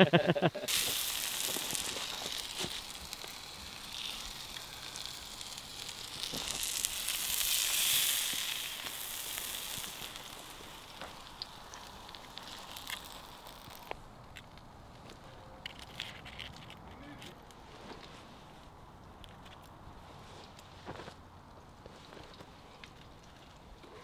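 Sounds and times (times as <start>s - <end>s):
food sizzling in a frying pan: 0.6s - 14.0s.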